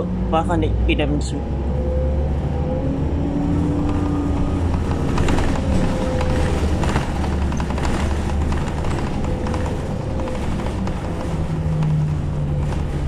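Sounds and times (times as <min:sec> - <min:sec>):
bus engine rumble: 0:00.0 - 0:13.0
faint engine whine: 0:00.0 - 0:13.0
body and fittings rattling: 0:03.8 - 0:13.0.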